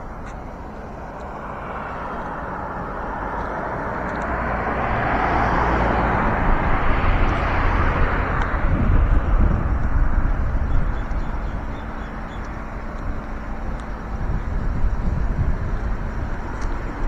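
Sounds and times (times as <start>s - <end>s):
motor vehicle rushing rumble: 0.0s - 17.0s.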